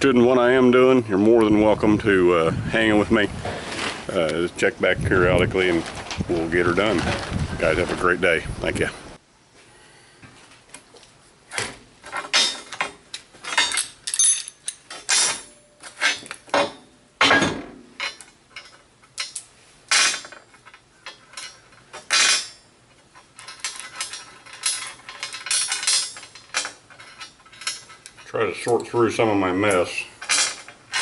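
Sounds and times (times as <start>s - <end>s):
metal pieces clanking: 12.0s - 28.8s, 29.6s - 31.0s.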